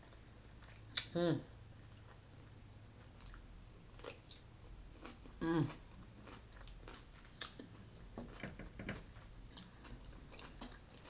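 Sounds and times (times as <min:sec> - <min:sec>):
chewing crisp cucumber: 0:03.0 - 0:07.9, 0:09.5 - 0:11.0
person humming: 0:05.4 - 0:05.8.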